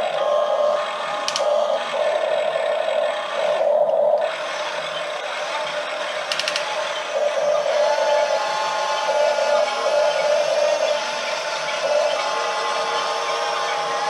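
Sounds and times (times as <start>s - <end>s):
toy electric motors whining: 0.0s - 14.0s
quick clicks: 1.2s - 1.6s, 6.2s - 6.9s.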